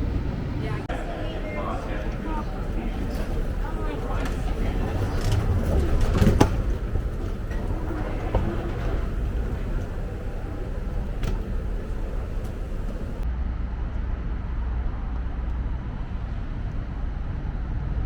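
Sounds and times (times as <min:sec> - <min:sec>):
low rumble of vehicle noise: 0:00.0 - 0:13.3.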